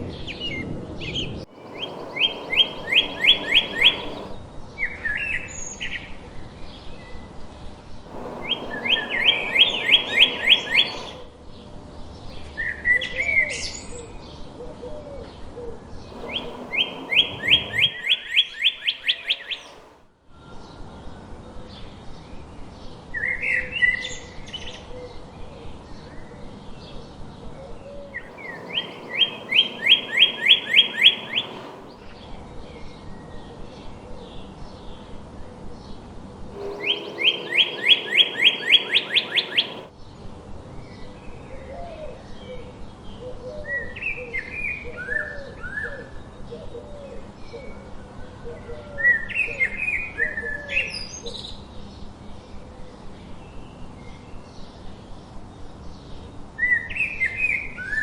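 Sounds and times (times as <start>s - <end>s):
bird whistling rapid notes: 1.5s - 4.4s, 8.1s - 11.2s, 16.1s - 19.9s, 28.2s - 32.0s, 36.6s - 39.9s
birds chirping quietly: 1.5s - 4.4s, 8.1s - 11.3s, 16.1s - 19.9s, 28.2s - 32.1s, 36.6s - 39.9s.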